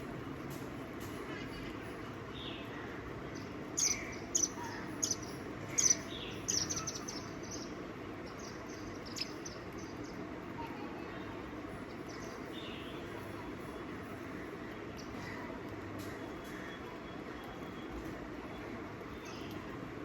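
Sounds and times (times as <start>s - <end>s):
small bird chirping: 3.3s - 10.3s.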